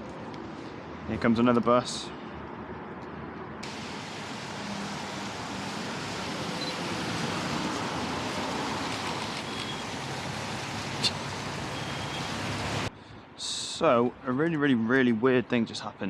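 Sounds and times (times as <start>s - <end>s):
bus passing: 3.6s - 12.9s
tyres hissing on wet road: 3.6s - 12.9s.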